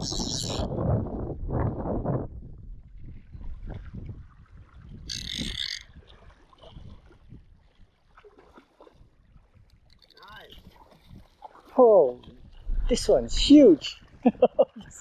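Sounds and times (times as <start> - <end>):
wind and water rumble: 0.0 - 15.0
fishing reel buzzing: 5.1 - 5.8.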